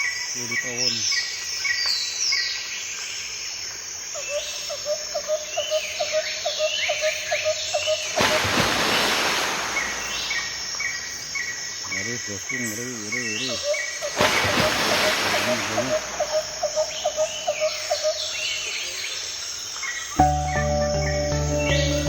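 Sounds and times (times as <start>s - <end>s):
insects: 0.0s - 20.4s
loud hiss: 8.2s - 11.6s, 14.1s - 17.1s
sliding whistled calls: 13.2s - 18.8s
low hooting notes: 20.2s - 22.0s.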